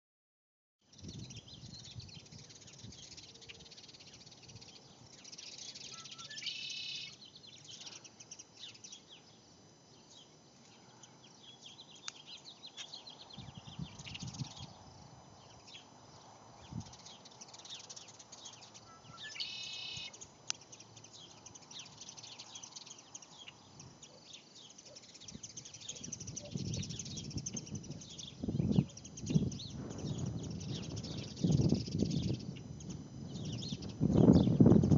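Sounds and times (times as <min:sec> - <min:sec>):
high-pitched bird chirps: 0:05.3 - 0:09.1, 0:16.7 - 0:34.9
loud long bird call: 0:05.6 - 0:08.8, 0:18.6 - 0:20.2.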